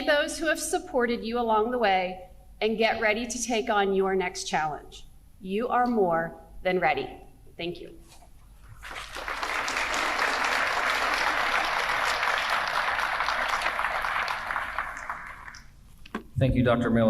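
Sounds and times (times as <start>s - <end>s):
audience applauding: 8.6s - 15.8s.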